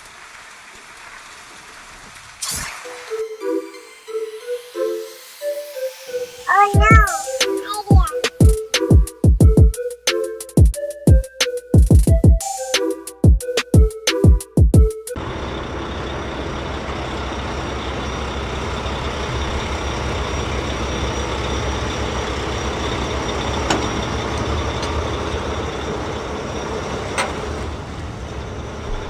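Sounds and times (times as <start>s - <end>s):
truck engine rumbling: 15.2s - 29.0s.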